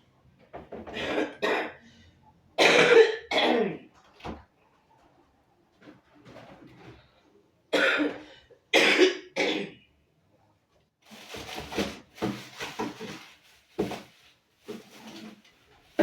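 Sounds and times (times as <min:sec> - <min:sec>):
person coughing: 0:00.9 - 0:01.8, 0:02.6 - 0:03.9, 0:07.7 - 0:09.8.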